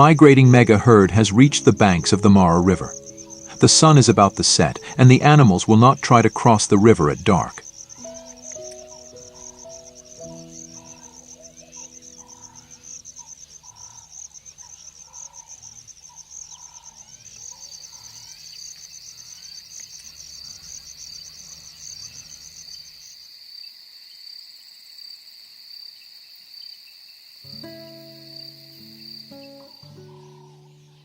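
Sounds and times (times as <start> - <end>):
music notes: 0.0 - 12.9, 27.5 - 31.0
insects trilling: 0.0 - 31.0
lower pulsing insect trill: 0.0 - 31.0.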